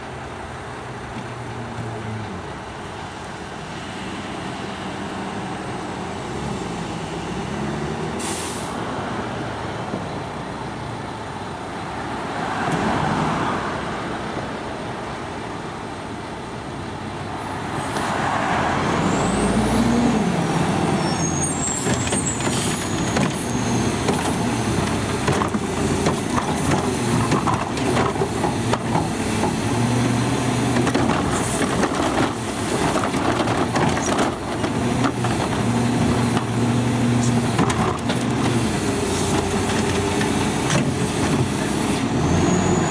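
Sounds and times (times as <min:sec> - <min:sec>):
diesel engine revving: 0:04.4 - 0:09.2, 0:17.6 - 0:42.9
air brakes hissing: 0:08.2 - 0:08.8.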